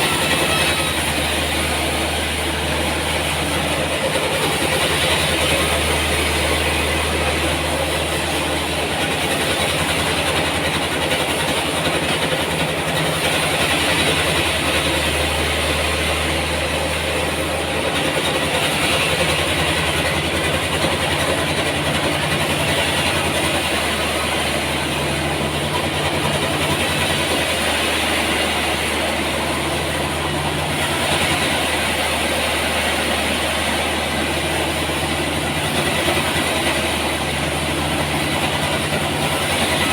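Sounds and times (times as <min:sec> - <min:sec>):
hissing saw: 0:00.0 - 0:17.0
engine drone with fast pulse: 0:00.0 - 0:39.9.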